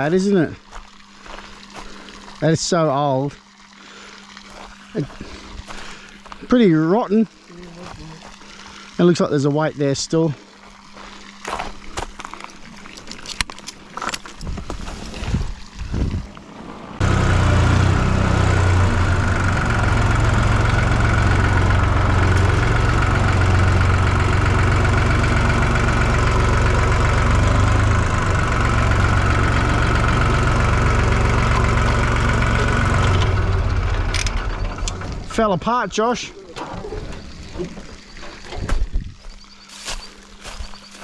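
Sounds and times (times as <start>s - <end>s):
forklift engine running: 13.6s - 38.7s.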